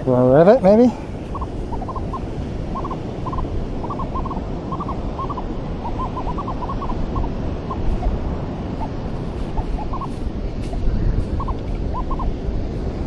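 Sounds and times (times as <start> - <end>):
surf washing: 0.0 - 13.0
wind on microphone: 0.0 - 13.0
metal detector beeping: 2.8 - 7.9.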